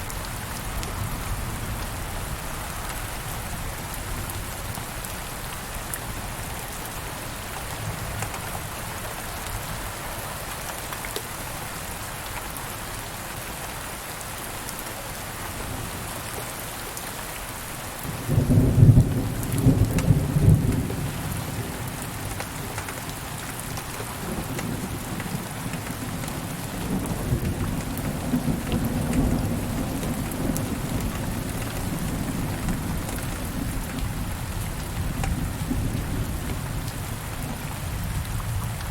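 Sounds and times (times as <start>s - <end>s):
steady rain falling: 0.0s - 38.9s
thunder crack and rumble: 18.2s - 22.4s, 24.2s - 38.9s.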